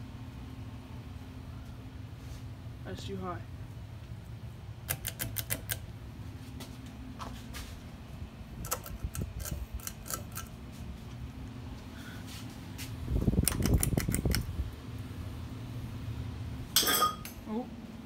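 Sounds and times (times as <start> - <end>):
ceiling fan motor hum: 0.0 - 18.0
low rumble with clicking: 12.9 - 16.5.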